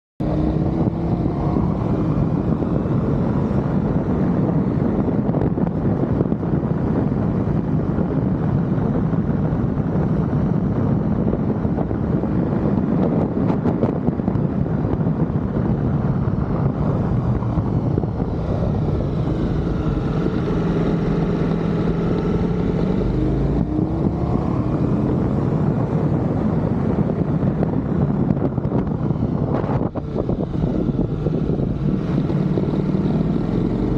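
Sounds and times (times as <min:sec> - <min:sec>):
motorcycle engine revving: 0:00.2 - 0:10.0, 0:10.8 - 0:33.9
wind on microphone: 0:00.2 - 0:33.9.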